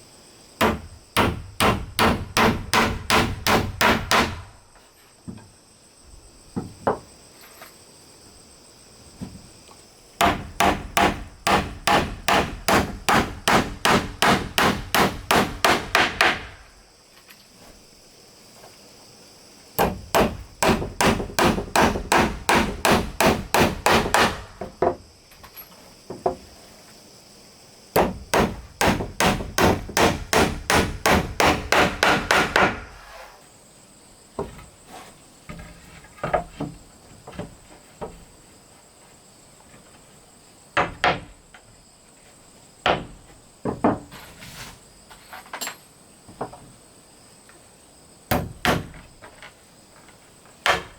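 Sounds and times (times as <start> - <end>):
hammer striking wood: 0.6 - 4.5, 10.2 - 16.6, 19.8 - 25.0, 28.0 - 32.9, 42.8 - 44.0, 48.3 - 49.0.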